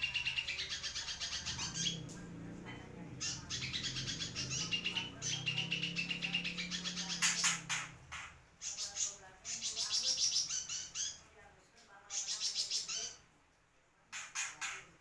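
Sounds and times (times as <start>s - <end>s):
bird singing rapid high trills: 0.0s - 2.2s, 3.1s - 8.0s.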